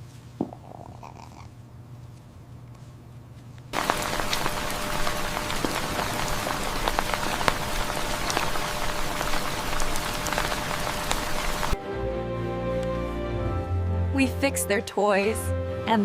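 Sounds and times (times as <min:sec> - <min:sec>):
steady rain falling: 0:03.8 - 0:11.8.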